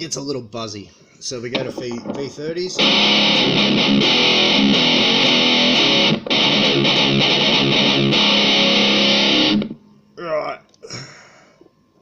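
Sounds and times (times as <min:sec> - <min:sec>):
distorted electric guitar riffs: 0:02.7 - 0:09.8.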